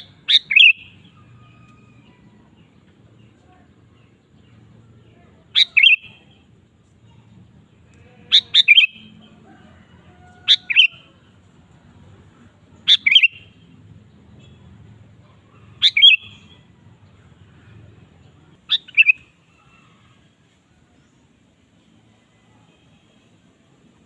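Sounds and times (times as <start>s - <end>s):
bulbul singing: 0.0s - 1.4s, 2.6s - 6.6s, 7.6s - 9.5s, 10.4s - 11.2s, 12.7s - 14.8s, 15.5s - 17.2s, 18.2s - 19.5s.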